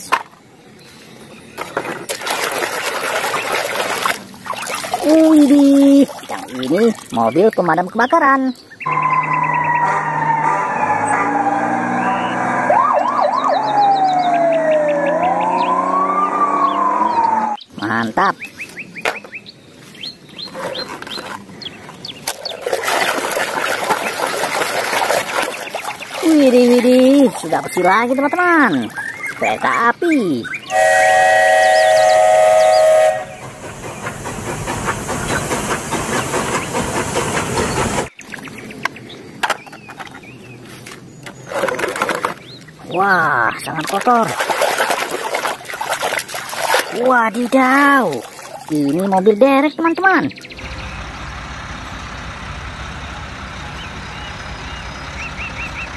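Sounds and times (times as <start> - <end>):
steam locomotive chime whistle: 8.9 - 11.4, 30.7 - 33.6
fire truck siren wailing: 8.9 - 17.6, 30.7 - 33.4
siren yelps: 8.9 - 17.6
locomotive chuffing past: 30.8 - 38.2
steam hissing: 32.2 - 38.1.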